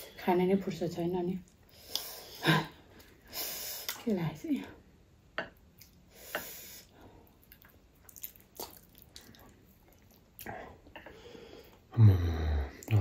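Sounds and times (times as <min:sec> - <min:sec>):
person chewing and smacking: 0:05.5 - 0:06.5, 0:07.2 - 0:11.9.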